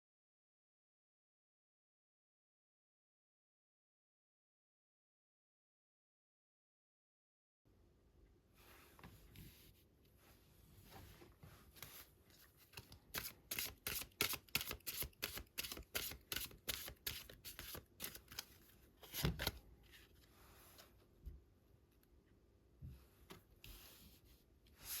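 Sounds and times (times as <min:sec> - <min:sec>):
cards being shuffled: 0:11.8 - 0:19.6.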